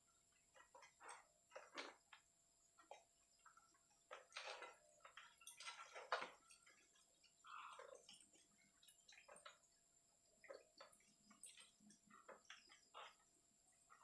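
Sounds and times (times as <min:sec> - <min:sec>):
scrubbing and splashing: 0:02.8 - 0:14.0.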